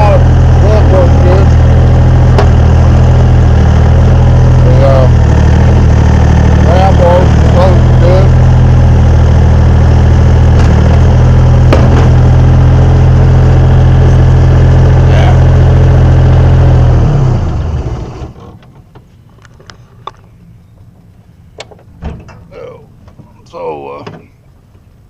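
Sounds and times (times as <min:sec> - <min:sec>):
diesel engine running and winding down: 0:00.0 - 0:18.4.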